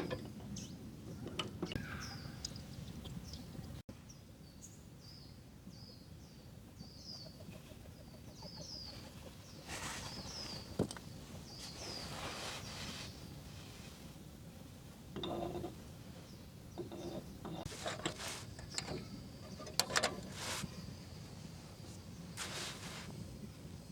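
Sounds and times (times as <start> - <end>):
small bird chirping: 0.5 - 10.8
rustling: 9.6 - 23.5.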